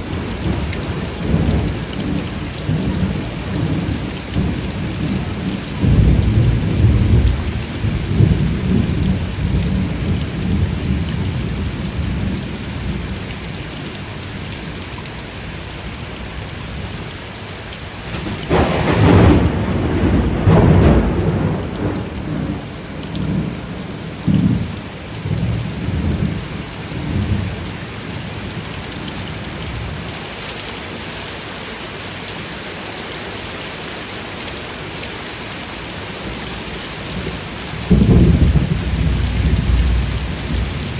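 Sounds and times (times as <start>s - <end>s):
steady rain: 0.0s - 40.9s
rolling thunder: 0.1s - 13.0s, 18.1s - 27.6s, 37.1s - 40.9s
loud thunderclap: 5.8s - 11.4s, 18.1s - 26.4s, 37.8s - 40.9s.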